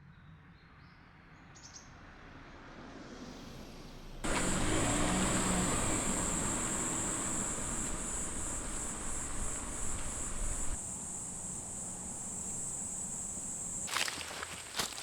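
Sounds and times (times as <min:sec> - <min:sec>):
crickets chirping: 0:04.2 - 0:15.0.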